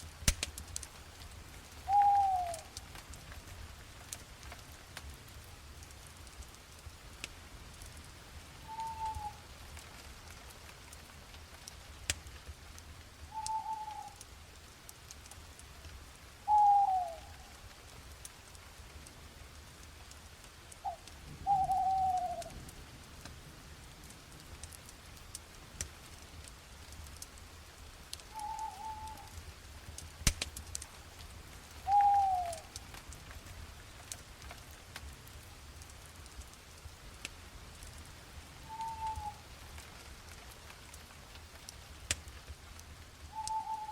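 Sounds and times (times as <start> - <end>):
faint ticks and crackles: 0.0 - 43.9.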